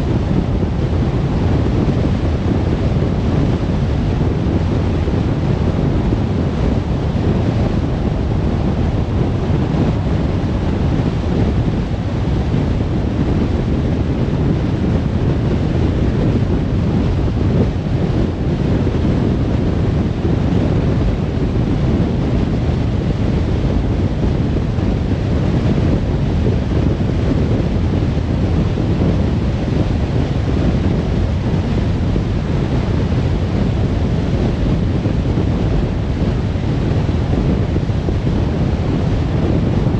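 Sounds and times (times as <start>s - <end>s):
car road and wind noise: 0.0s - 39.9s.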